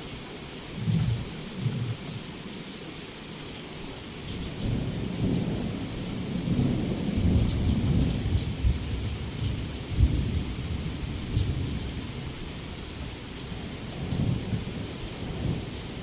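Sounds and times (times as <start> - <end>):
heavy rain falling: 0.0 - 16.0
thunder rumbling: 0.8 - 2.2, 4.5 - 12.4.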